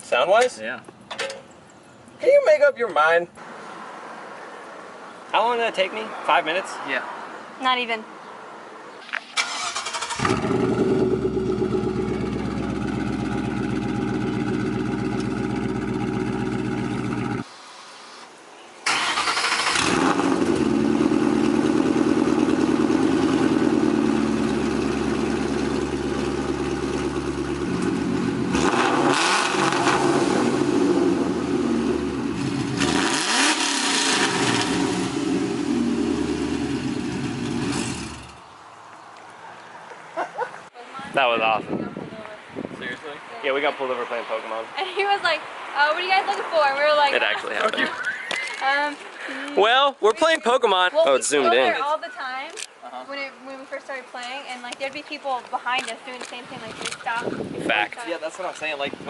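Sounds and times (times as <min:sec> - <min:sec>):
car engine idling and revving: 0:09.7 - 0:17.5, 0:19.4 - 0:38.4.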